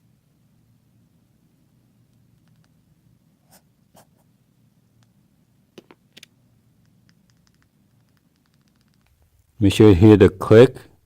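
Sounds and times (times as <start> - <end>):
sharp clicks: 6.2 - 9.2.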